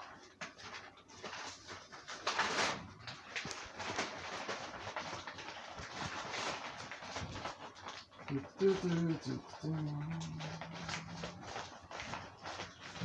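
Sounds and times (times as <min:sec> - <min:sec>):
peanut butter being stirred: 0:08.1 - 0:13.0.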